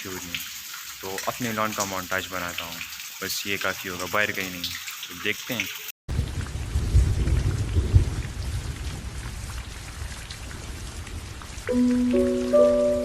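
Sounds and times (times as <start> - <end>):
heavy rain falling: 6.1 - 13.0
thunder rumbling: 6.1 - 13.0
held music notes: 11.7 - 13.0.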